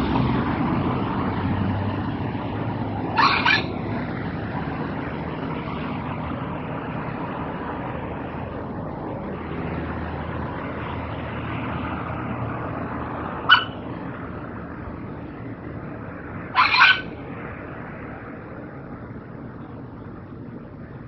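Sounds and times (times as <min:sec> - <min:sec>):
steady background noise: 0:00.0 - 0:21.0
bird calls: 0:03.2 - 0:03.7, 0:13.5 - 0:13.8, 0:16.6 - 0:17.1.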